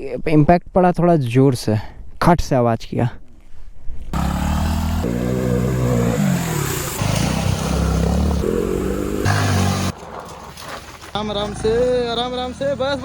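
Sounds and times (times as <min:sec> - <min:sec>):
motorcycle engine revving: 0:04.2 - 0:10.0.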